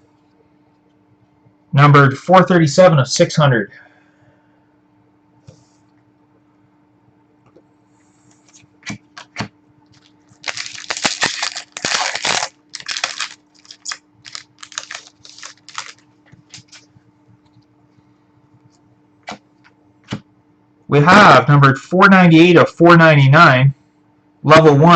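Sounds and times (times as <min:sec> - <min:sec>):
wrapper tearing and crinkling: 0:10.0 - 0:16.9.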